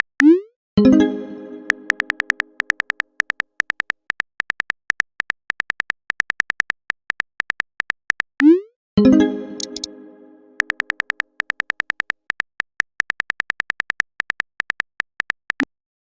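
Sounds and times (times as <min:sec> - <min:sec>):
phone keyboard typing ticks: 0:00.0 - 0:00.5, 0:01.6 - 0:08.7, 0:09.6 - 0:09.9, 0:10.6 - 0:15.8
chime-like notification chord: 0:00.8 - 0:02.2, 0:09.0 - 0:10.6.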